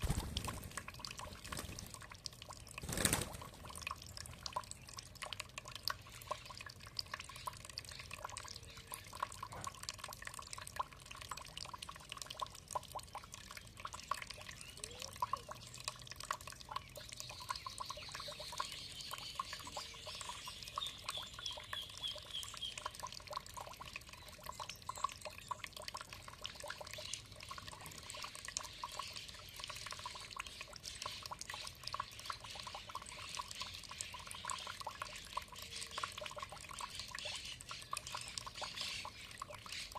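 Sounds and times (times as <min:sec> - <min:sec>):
water trickling and dripping: 0:00.0 - 0:39.9.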